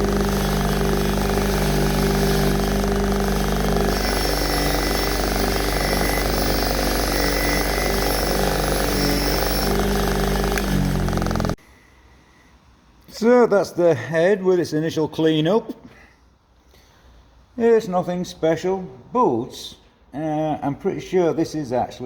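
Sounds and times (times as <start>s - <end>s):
power tool running under load: 0.0s - 11.6s.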